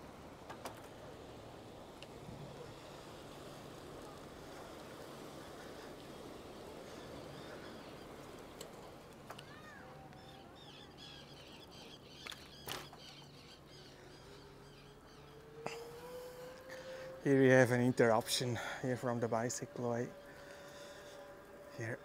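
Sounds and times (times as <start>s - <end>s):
wind: 0.0s - 22.0s
small birds chirping: 5.4s - 16.6s.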